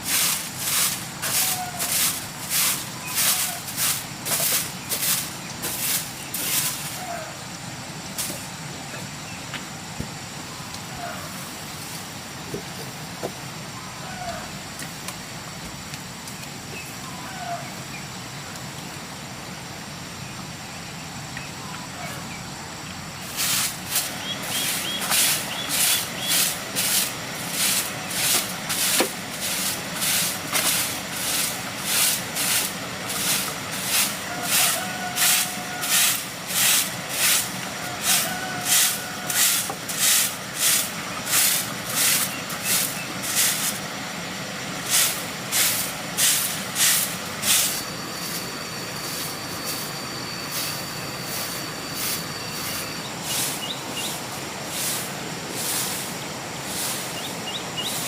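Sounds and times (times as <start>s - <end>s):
rhythmic swishing strokes: 44.8s - 56.1s.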